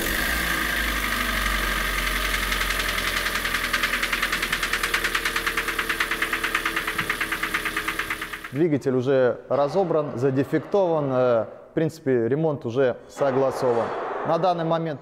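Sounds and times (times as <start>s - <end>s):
car engine idling with rapid knock: 0.0s - 8.6s.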